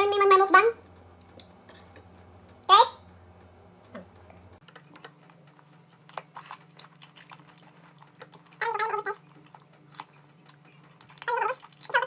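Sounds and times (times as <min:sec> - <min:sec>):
crunching and chewing: 0:04.1 - 0:12.0.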